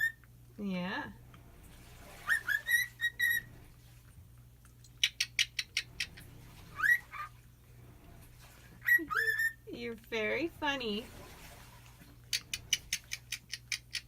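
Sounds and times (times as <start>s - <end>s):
cockatiel whistled chirps: 2.2s - 3.5s, 6.8s - 7.3s, 8.8s - 9.6s.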